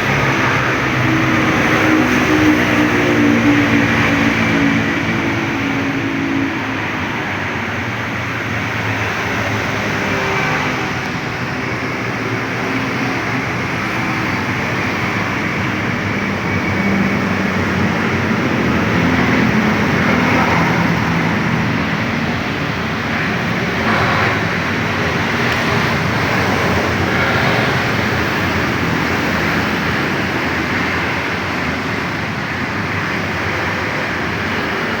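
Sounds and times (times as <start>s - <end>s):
two-stroke motorcycle engine: 8.0s - 35.0s.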